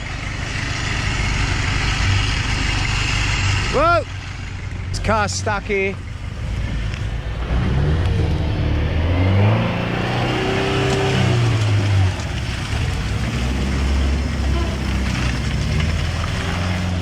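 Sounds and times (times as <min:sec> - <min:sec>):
car engine revving hard: 0:05.0 - 0:17.0.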